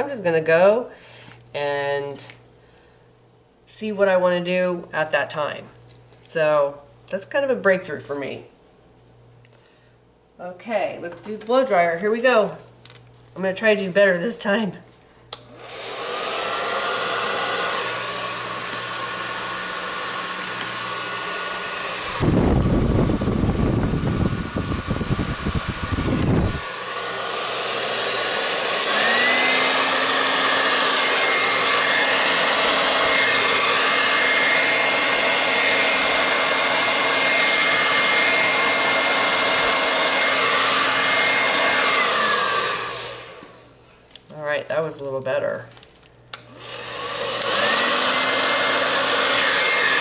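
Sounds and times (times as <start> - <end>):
hair dryer blowing: 15.3 - 43.8, 46.3 - 50.0.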